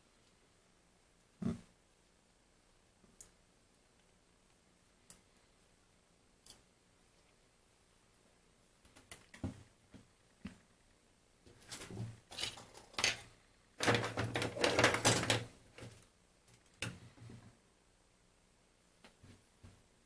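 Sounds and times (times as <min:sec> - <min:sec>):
plastic parts clattering: 0:11.6 - 0:16.0.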